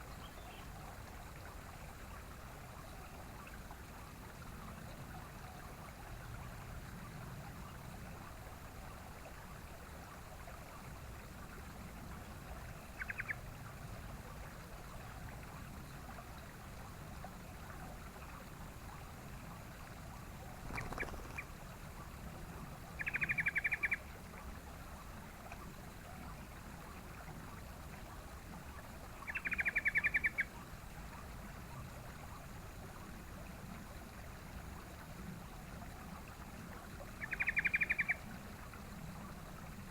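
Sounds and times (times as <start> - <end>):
bird rattling calls: 20.6 - 21.6.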